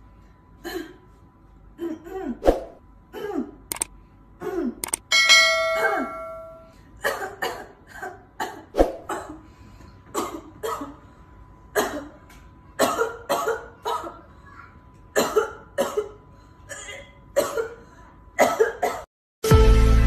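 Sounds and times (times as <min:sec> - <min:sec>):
bell-like ding: 0:05.1 - 0:06.7.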